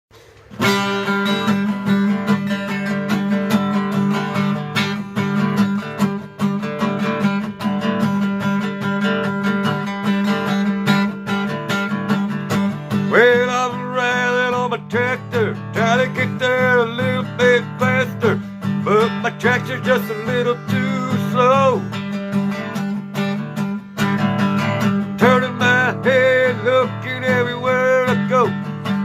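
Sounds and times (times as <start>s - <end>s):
acoustic guitar strumming: 0.1s - 29.0s
person singing: 13.0s - 22.0s, 24.8s - 29.0s.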